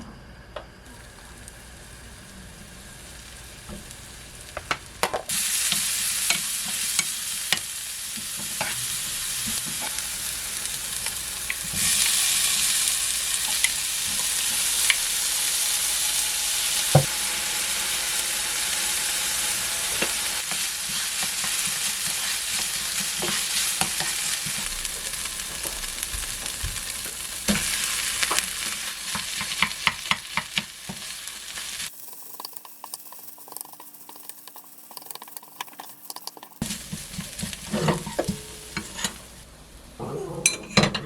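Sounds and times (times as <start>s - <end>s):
food sizzling in a frying pan: 0.8s - 40.0s
utensil clicking against pan: 32.1s - 36.6s.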